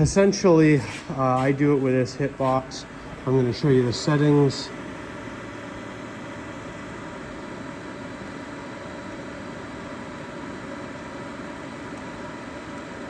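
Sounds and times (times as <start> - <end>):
fan running: 0.0 - 13.0.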